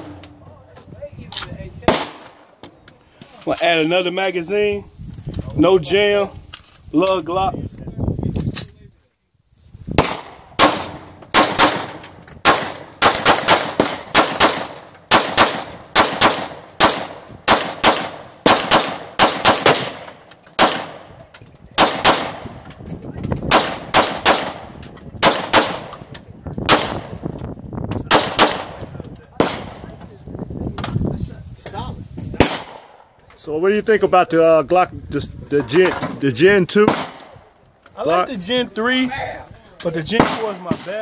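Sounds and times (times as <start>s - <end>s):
pistol shots with echo: 1.9s - 2.5s, 10.0s - 21.1s, 21.8s - 22.6s, 23.5s - 26.0s, 26.7s - 27.2s, 28.1s - 28.8s, 29.4s - 29.8s, 32.4s - 33.0s, 36.8s - 37.4s, 40.1s - 41.0s.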